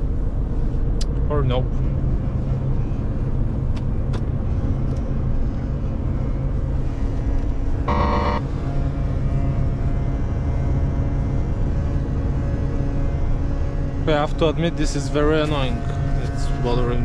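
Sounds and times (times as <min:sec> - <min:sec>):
truck engine and road noise: 0:00.0 - 0:17.0
high buzzing squeak: 0:07.9 - 0:08.4.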